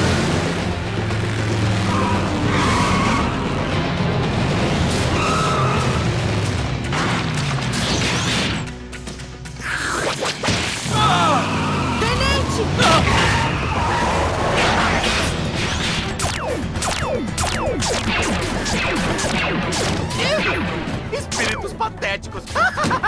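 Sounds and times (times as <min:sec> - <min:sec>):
cartoon music score: 0:16.2 - 0:23.0.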